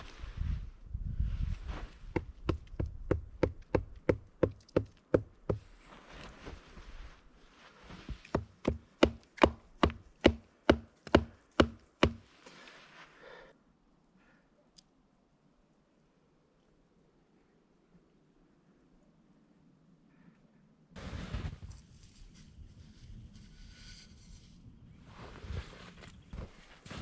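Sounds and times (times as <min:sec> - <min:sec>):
sharp knocks on wood: 0:08.4 - 0:12.2.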